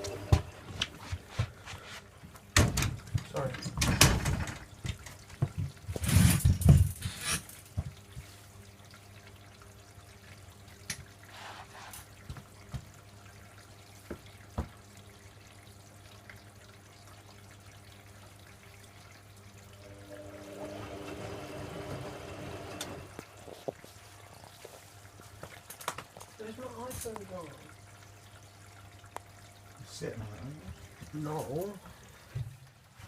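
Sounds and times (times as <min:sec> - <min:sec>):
drum motor whine: 0:00.0 - 0:00.7, 0:19.8 - 0:23.2
washing machine low hum: 0:00.0 - 0:06.6, 0:07.7 - 0:25.4.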